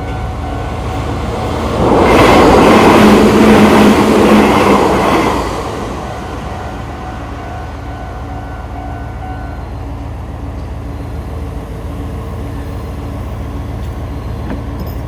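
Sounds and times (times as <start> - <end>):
crossing warning bell: 0.0 - 2.0, 5.9 - 15.0
train wheels rumbling on rail: 0.0 - 15.0.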